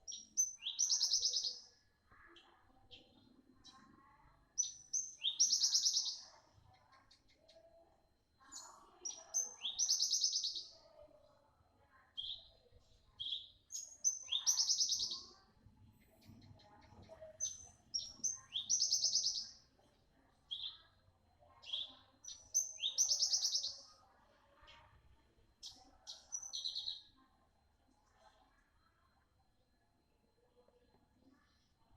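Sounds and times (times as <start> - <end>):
bird singing high trill: 0.1 - 1.6, 4.6 - 6.2, 13.2 - 15.2, 21.7 - 23.8.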